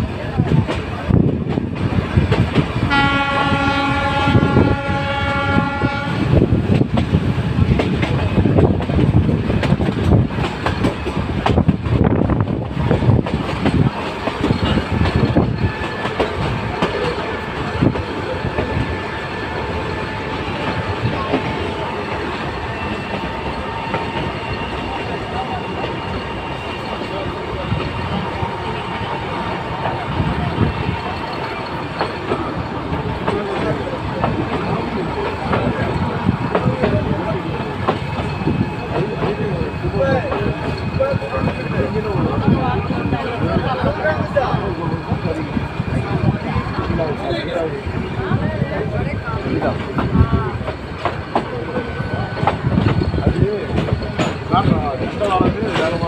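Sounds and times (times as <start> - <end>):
train wheels clickety-clack: 0.0 - 56.0
train horn: 2.8 - 6.4.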